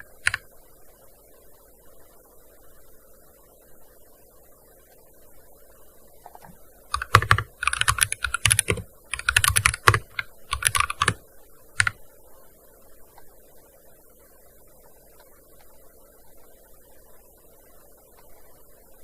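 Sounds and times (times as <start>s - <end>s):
keyboard typing: 0.0s - 0.4s, 6.3s - 11.2s.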